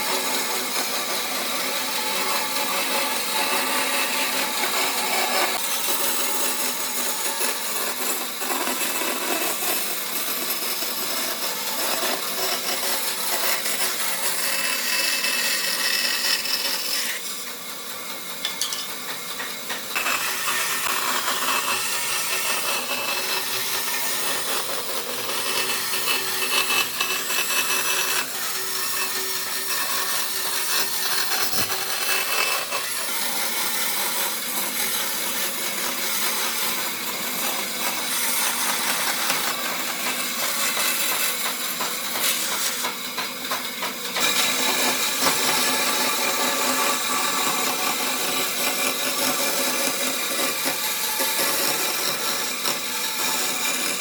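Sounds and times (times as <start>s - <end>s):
power tool working wood: 0.0s - 54.0s.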